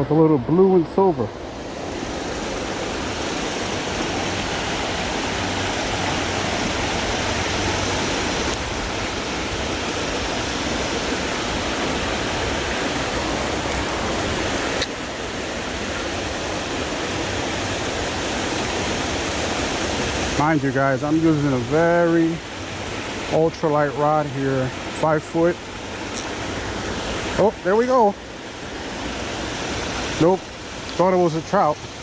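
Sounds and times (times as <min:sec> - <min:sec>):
creek water flowing: 0:00.0 - 0:32.0
sharp click: 0:26.1 - 0:26.4.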